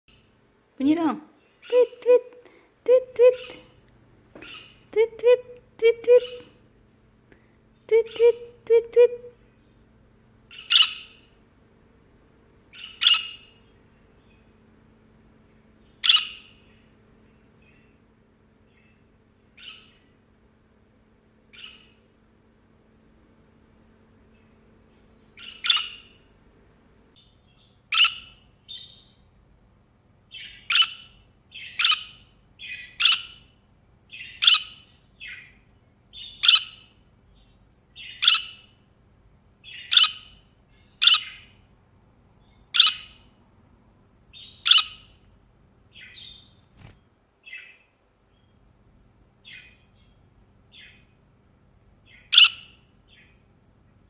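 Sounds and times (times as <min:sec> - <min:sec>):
budgerigar chirping: 0:04.4 - 0:04.8, 0:10.5 - 0:11.3, 0:12.7 - 0:13.6, 0:16.0 - 0:16.8, 0:19.6 - 0:20.0, 0:21.5 - 0:22.0, 0:25.4 - 0:26.2, 0:27.2 - 0:29.2, 0:30.3 - 0:33.5, 0:34.1 - 0:38.8, 0:39.6 - 0:41.6, 0:42.7 - 0:43.3, 0:44.3 - 0:45.2, 0:45.9 - 0:46.5, 0:47.4 - 0:47.9, 0:49.4 - 0:51.0, 0:52.1 - 0:53.4.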